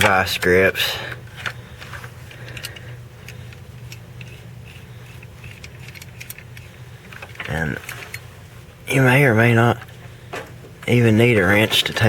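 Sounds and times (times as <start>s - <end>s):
hand tools clicking and tapping: 0.0s - 8.2s
steady low hum: 0.0s - 12.0s.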